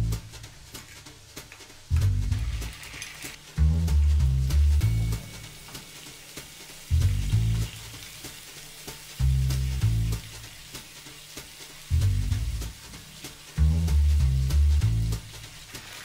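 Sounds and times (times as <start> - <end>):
deep bass notes of music: 0.0 - 2.8, 3.4 - 5.8, 6.8 - 8.4, 9.0 - 10.8, 11.8 - 15.8
paste sizzling in hot oil: 0.2 - 3.6, 4.2 - 16.0.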